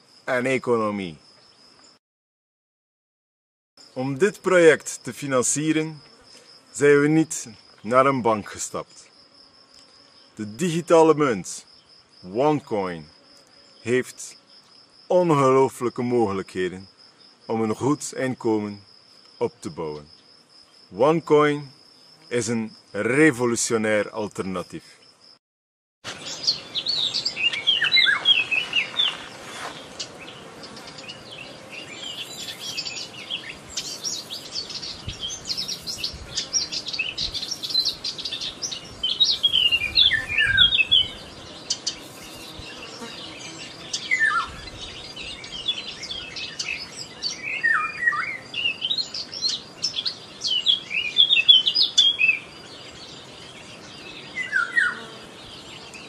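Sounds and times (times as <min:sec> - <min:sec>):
songbirds chirping: 0:00.2 - 0:02.0, 0:03.8 - 0:09.1, 0:26.1 - 0:56.0.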